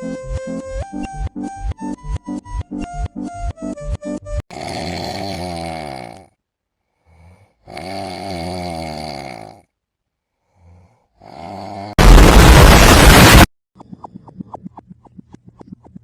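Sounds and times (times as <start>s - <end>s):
loud harsh noise blast: 12.0s - 13.5s.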